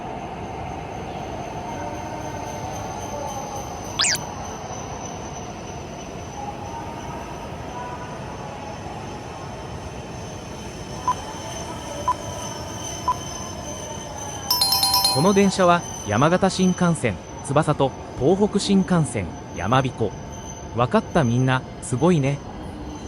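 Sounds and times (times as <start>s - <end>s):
sharp high squeal: 4.0s - 4.2s
short beeps: 4.0s - 4.2s.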